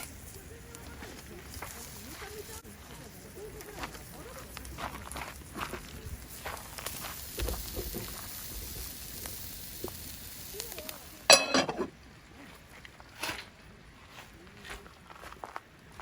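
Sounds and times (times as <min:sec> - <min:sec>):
cooking fire hissing and crackling: 0:00.0 - 0:16.0
loud ringing metallic clank: 0:11.3 - 0:11.9.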